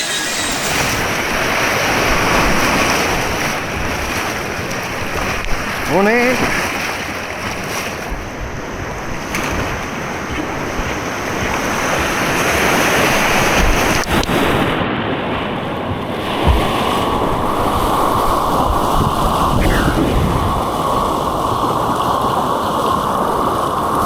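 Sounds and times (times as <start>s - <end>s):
wind noise on microphone: 6.4s - 24.0s.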